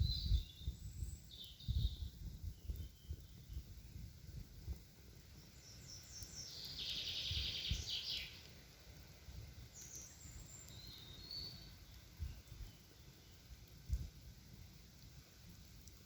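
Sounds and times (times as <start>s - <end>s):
songbirds trilling: 0.0s - 3.7s, 5.3s - 8.5s, 9.7s - 13.5s.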